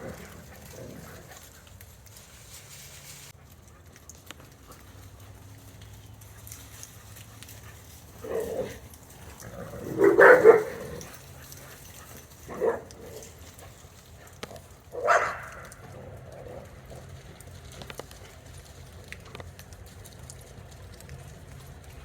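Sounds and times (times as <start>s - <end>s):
dog barking: 10.0s - 11.0s, 15.0s - 15.7s.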